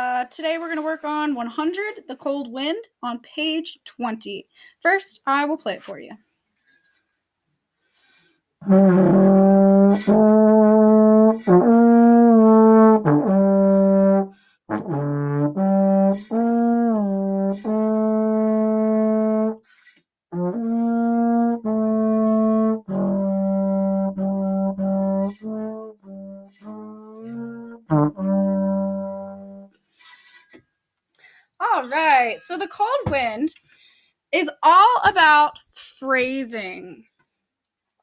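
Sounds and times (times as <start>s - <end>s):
trombone playing slow melody: 8.6s - 19.6s, 20.3s - 29.7s.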